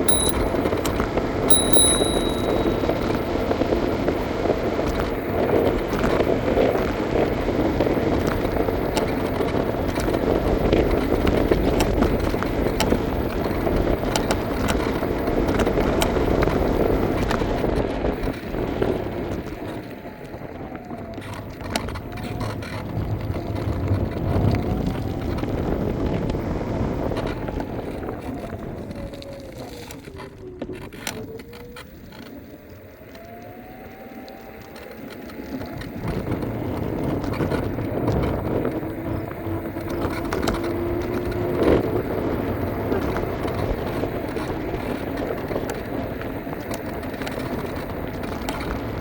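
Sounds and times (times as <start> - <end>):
faint whine: 1.5 - 3.0
wheels and wind rumble: 20.2 - 49.0.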